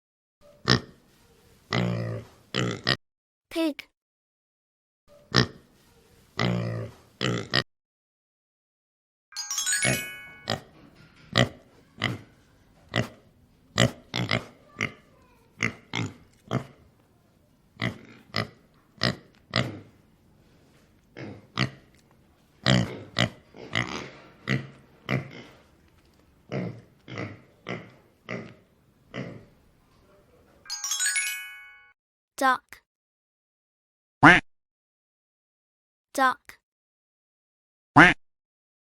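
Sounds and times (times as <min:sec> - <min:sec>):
pigs grunting and oinking: 0:00.6 - 0:01.0, 0:01.7 - 0:03.0, 0:05.3 - 0:05.7, 0:06.4 - 0:07.6, 0:11.3 - 0:16.9, 0:17.8 - 0:20.0, 0:21.1 - 0:21.9, 0:22.6 - 0:25.7, 0:26.5 - 0:29.6
short chime: 0:09.4 - 0:10.6, 0:30.7 - 0:32.0.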